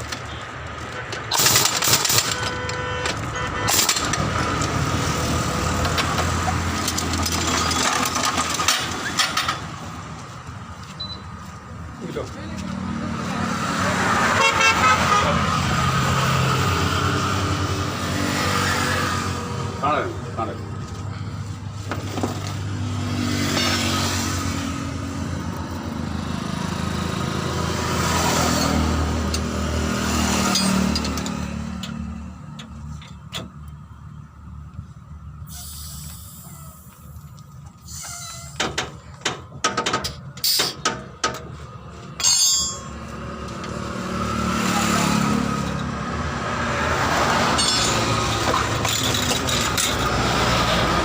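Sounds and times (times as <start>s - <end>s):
road traffic passing: 0.0s - 51.0s
sharp knocks and clanks: 38.6s - 43.8s.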